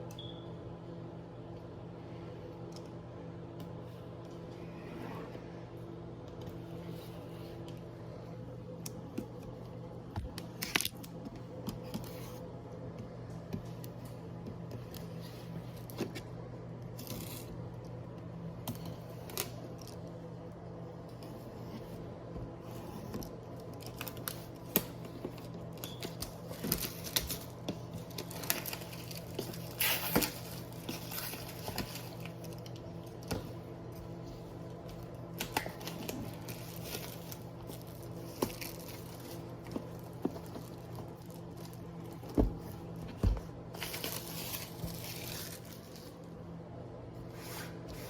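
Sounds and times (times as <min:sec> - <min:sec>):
steady low hum: 0:00.0 - 0:48.0
paper and plastic rustling: 0:22.7 - 0:46.3.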